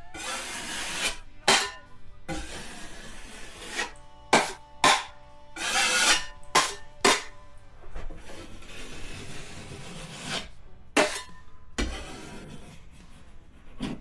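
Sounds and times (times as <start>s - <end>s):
drywall knife scraping compound: 0.0s - 7.4s, 8.0s - 14.0s.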